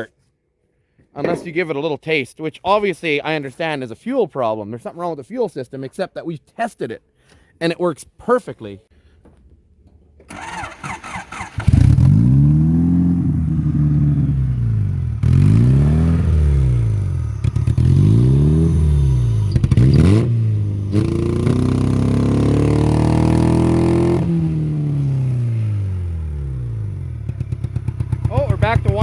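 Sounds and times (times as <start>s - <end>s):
car engine starting and revving: 10.3s - 29.0s.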